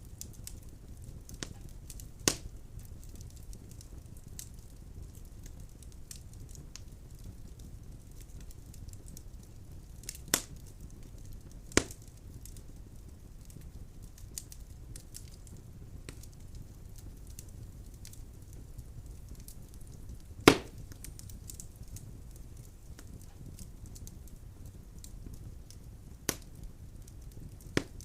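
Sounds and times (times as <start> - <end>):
firewood crackling: 0.0 - 28.0
flames rumbling: 0.0 - 28.0
loud sharp pops of firewood: 2.2 - 2.5, 10.0 - 10.6, 11.7 - 12.0, 20.4 - 21.6, 26.3 - 26.5, 27.7 - 28.0.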